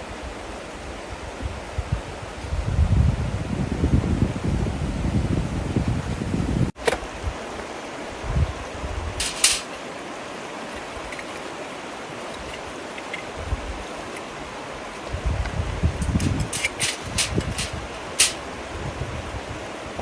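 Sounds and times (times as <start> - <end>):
running water rushing: 6.7 - 20.0.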